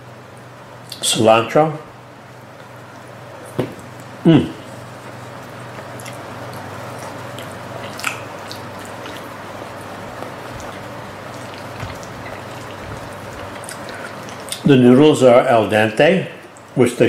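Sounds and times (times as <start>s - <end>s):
person chewing food: 2.6s - 14.7s.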